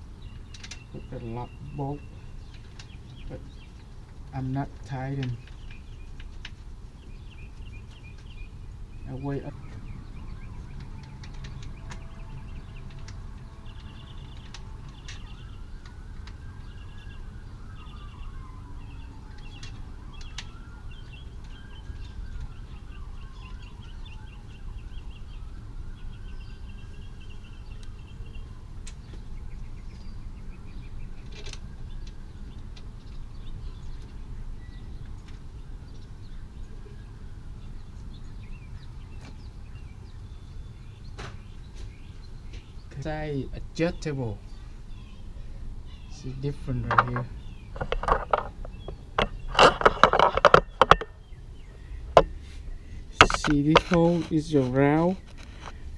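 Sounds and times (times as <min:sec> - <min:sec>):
birds chirping: 0:00.0 - 0:55.9
faint siren wailing: 0:07.0 - 0:40.9.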